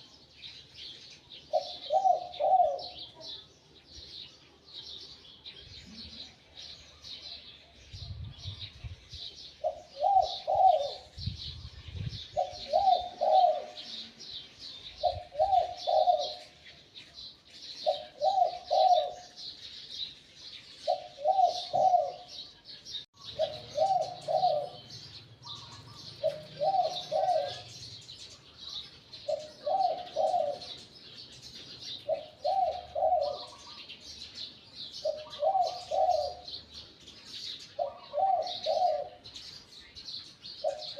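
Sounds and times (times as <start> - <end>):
small birds chirping: 0.0 - 40.9
dove cooing: 1.5 - 3.4, 9.6 - 11.4, 12.1 - 14.3, 14.9 - 16.6, 17.8 - 19.4, 20.8 - 22.4, 23.2 - 28.2, 29.2 - 31.0, 31.8 - 33.9, 35.0 - 36.7, 37.6 - 39.4, 40.6 - 40.9.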